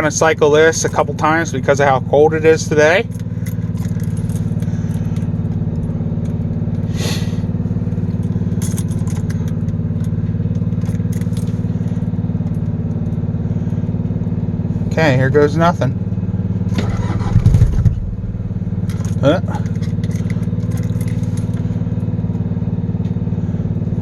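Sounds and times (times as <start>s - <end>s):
low mechanical hum: 0.0s - 24.0s
ignition clicks: 16.6s - 21.7s.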